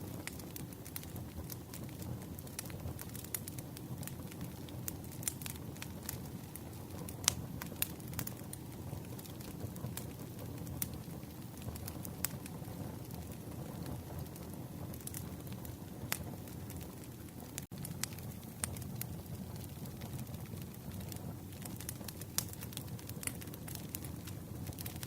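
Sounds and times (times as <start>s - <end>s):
campfire crackling: 0.0s - 25.0s.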